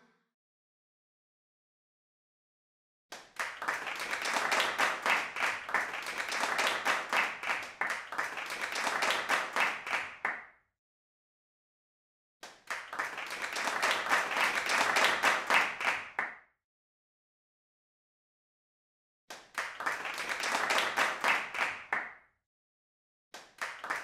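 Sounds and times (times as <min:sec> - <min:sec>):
applause: 0:03.1 - 0:10.5, 0:12.4 - 0:16.4, 0:19.3 - 0:22.3, 0:23.4 - 0:24.0.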